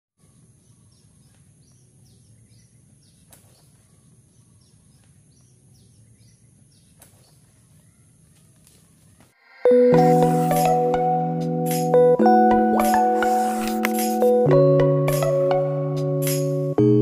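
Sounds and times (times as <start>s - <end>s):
bird chirping: 0.2s - 10.7s
steady high-pitched note: 9.4s - 14.4s.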